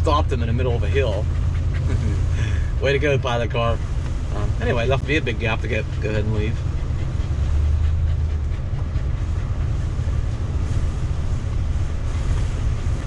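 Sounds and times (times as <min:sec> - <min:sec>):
motorhome engine and road noise: 0:00.0 - 0:13.0
wind noise: 0:00.0 - 0:13.0.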